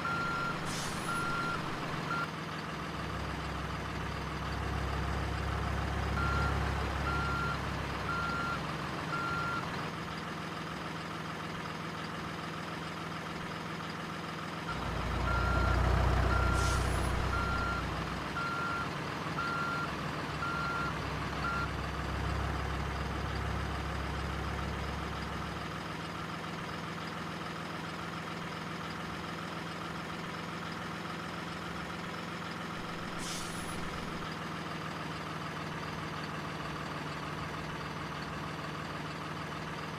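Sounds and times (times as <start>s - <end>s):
reversing beeper: 0.0s - 2.2s, 15.3s - 18.8s
engine hum: 0.0s - 39.9s
short hisses: 33.0s - 34.2s.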